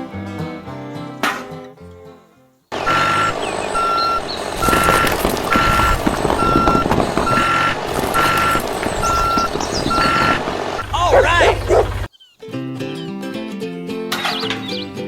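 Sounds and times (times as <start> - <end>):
reversing alarm beeping: 2.8 - 12.1
clattering rumble: 3.2 - 12.1.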